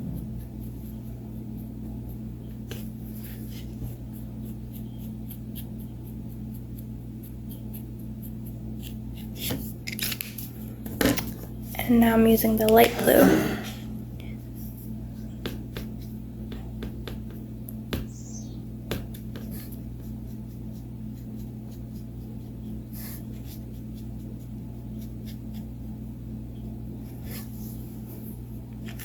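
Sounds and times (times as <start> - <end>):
steady low hum: 0.0 - 29.0
marker scratching and tapping: 0.2 - 9.6, 15.4 - 25.7.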